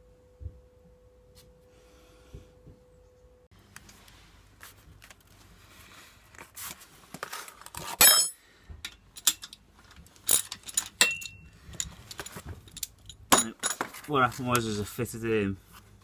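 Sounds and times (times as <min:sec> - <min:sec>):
metal tools clinking: 0:07.9 - 0:14.4
metallic clang: 0:10.3 - 0:11.4.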